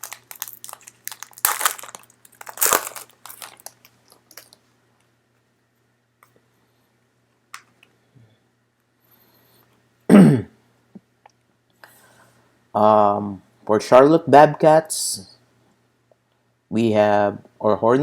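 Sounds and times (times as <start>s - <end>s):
plastic wrapper tearing and crinkling: 0.0s - 4.6s.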